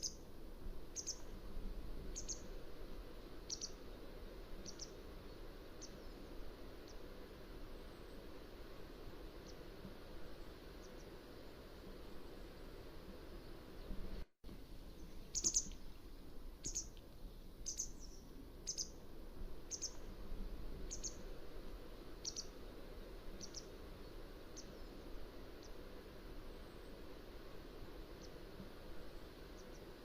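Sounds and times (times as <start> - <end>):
bird chirping: 0.9 - 1.3, 2.1 - 2.5, 3.5 - 3.8, 4.6 - 5.0, 14.8 - 15.9, 16.6 - 19.0, 19.7 - 20.0, 20.9 - 21.2, 22.2 - 22.5, 23.4 - 23.8.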